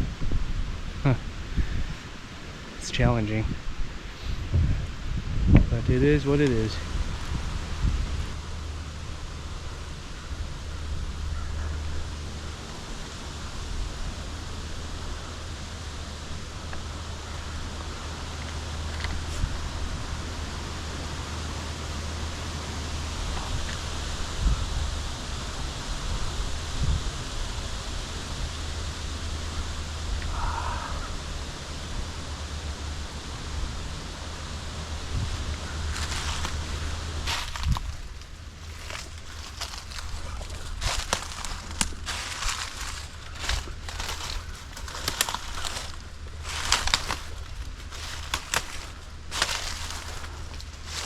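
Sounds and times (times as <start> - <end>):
wind buffeting microphone: 0.0 - 11.5, 35.0 - 51.0
wind hiss: 0.0 - 51.0.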